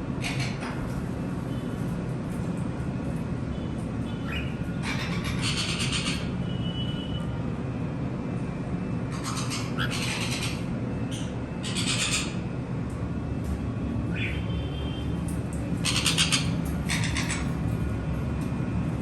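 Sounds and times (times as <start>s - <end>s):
parrots chirping: 4.0s - 6.4s, 9.1s - 12.5s, 14.1s - 14.6s, 15.8s - 17.6s
harsh rasping squawks: 9.1s - 12.4s, 15.8s - 17.6s.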